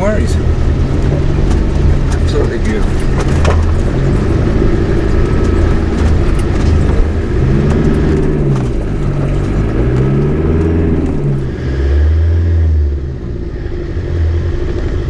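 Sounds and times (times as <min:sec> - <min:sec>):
four-wheel drive engine revving: 0:00.0 - 0:15.0.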